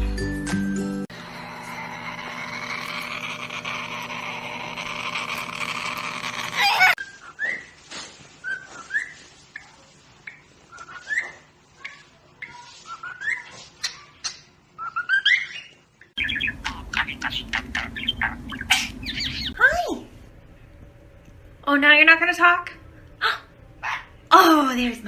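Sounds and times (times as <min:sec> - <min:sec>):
bird chirping and whistling: 0:08.4 - 0:09.2, 0:14.8 - 0:19.6.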